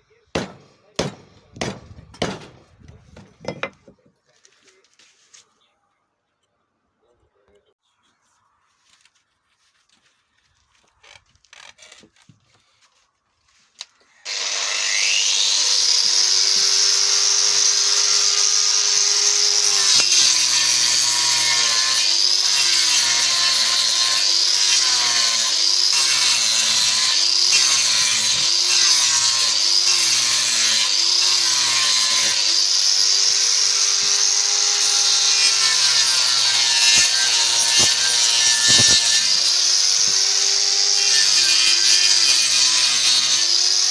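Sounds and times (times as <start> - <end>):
power tool cutting wood: 14.2 - 43.9.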